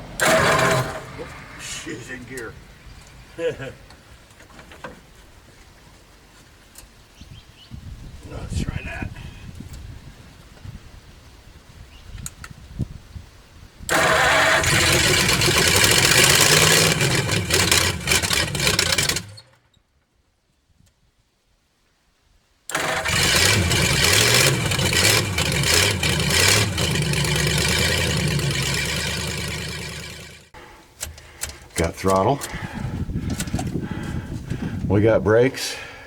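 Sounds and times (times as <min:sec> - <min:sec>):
vehicle engine revving: 0:00.0 - 0:02.8, 0:13.9 - 0:19.4, 0:22.7 - 0:30.6.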